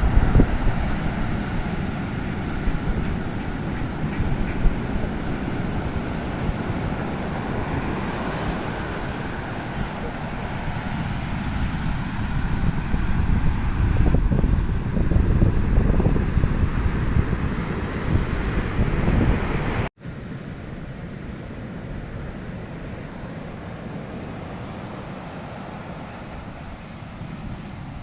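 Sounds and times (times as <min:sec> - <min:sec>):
heavy surf breaking: 0:00.0 - 0:19.9, 0:20.8 - 0:28.0
wind buffeting microphone: 0:00.0 - 0:19.9.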